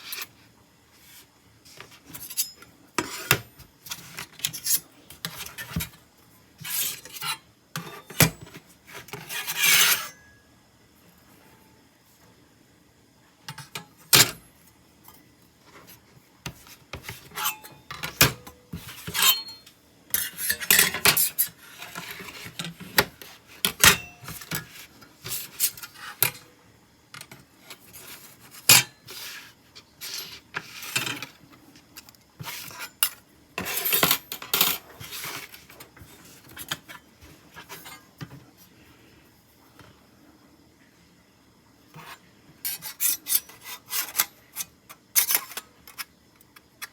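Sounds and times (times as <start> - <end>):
metal objects clinking: 19.1 - 21.1.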